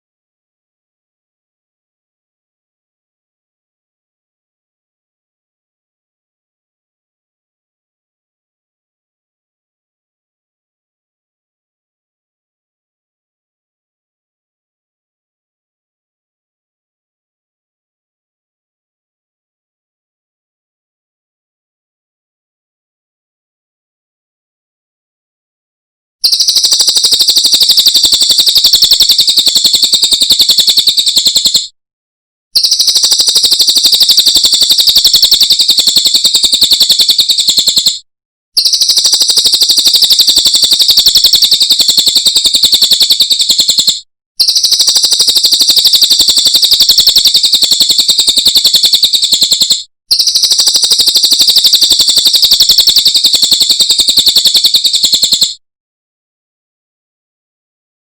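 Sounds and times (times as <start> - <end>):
bird chattering trill: 26.2 - 31.7, 32.6 - 38.0, 38.6 - 55.5.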